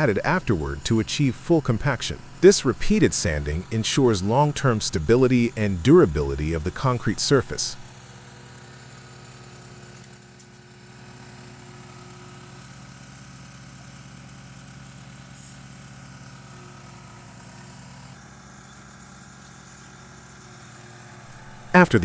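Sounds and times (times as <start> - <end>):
machine engine humming: 0.0 - 7.9, 16.3 - 22.0.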